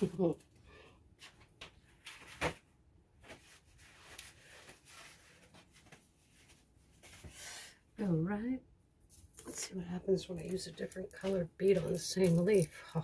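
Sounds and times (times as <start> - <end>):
clicks of small objects handled: 10.4 - 12.8.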